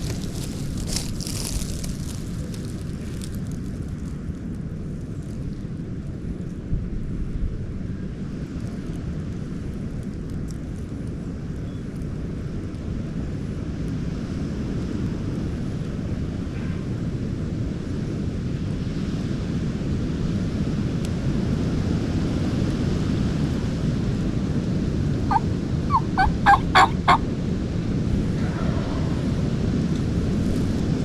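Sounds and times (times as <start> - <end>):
wind buffeting microphone: 0.0 - 5.0, 23.0 - 31.0
wild turkey gobbling: 25.3 - 27.3.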